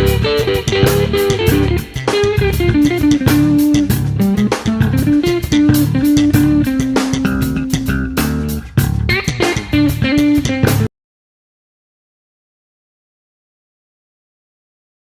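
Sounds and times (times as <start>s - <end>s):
bass guitar: 0.0s - 10.9s
electric guitar lead: 0.0s - 10.9s
steady drum beat: 0.0s - 10.9s.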